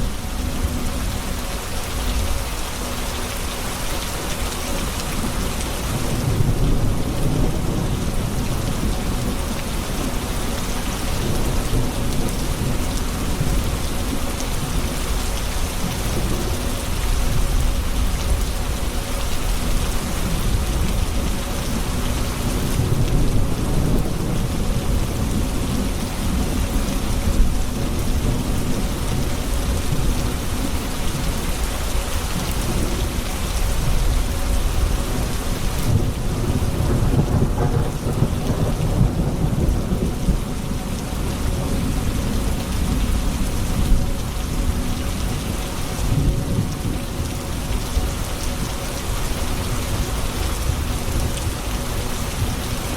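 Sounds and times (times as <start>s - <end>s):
heavy rain: 0.0s - 52.9s
thunder rumbling: 19.8s - 31.6s, 32.2s - 52.9s.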